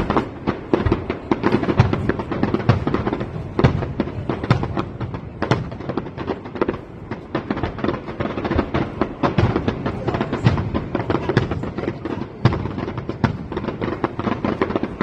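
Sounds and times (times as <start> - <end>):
fireworks bangs and crackles: 0.0 - 15.0
loud firework booms: 0.0 - 15.0.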